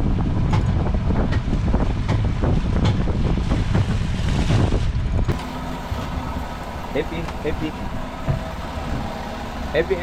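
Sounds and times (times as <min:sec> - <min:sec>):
wind buffeting microphone: 0:00.0 - 0:10.0
sharp clicks and knocks: 0:00.5 - 0:03.0.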